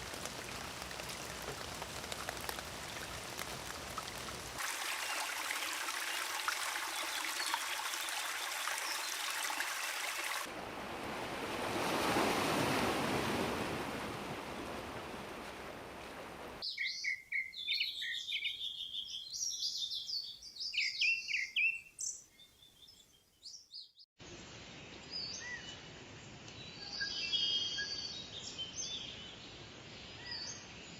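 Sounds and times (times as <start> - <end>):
songbirds chirping: 16.6 - 30.9.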